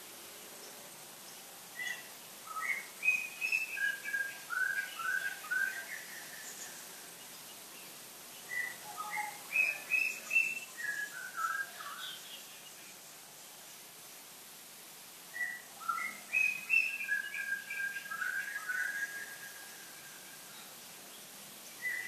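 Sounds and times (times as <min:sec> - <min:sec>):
bird singing whistled notes: 0:01.8 - 0:07.1, 0:07.8 - 0:12.9, 0:15.3 - 0:20.7, 0:21.7 - 0:22.0.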